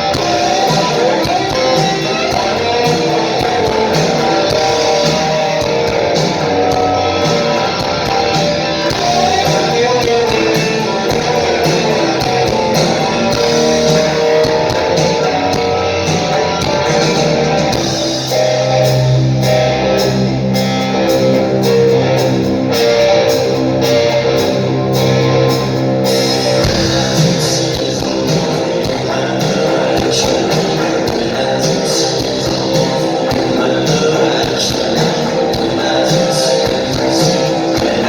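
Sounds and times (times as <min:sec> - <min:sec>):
drum and cymbal hits: 0:00.0 - 0:38.0
live rock band playing: 0:00.0 - 0:38.0.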